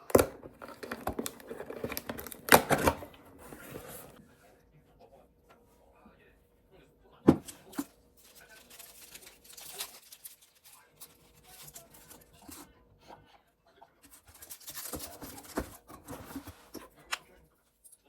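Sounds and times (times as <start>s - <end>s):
rustling: 7.4s - 12.7s.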